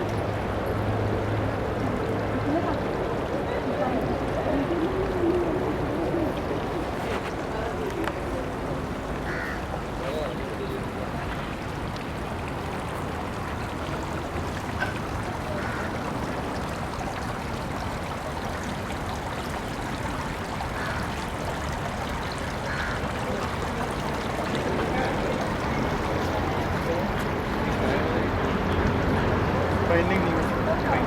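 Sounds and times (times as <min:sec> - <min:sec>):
rushing water: 0:00.0 - 0:31.0
faint calls: 0:09.2 - 0:09.7, 0:22.2 - 0:27.0.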